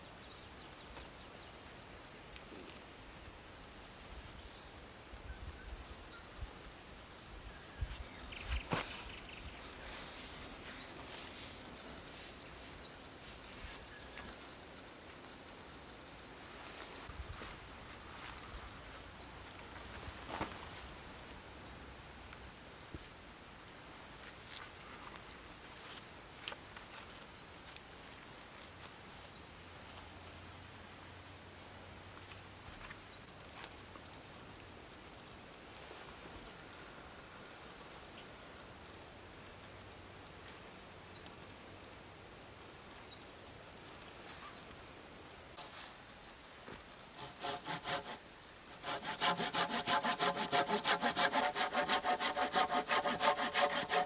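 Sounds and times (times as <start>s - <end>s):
small birds chirping: 31.9s - 35.6s, 36.4s - 46.2s.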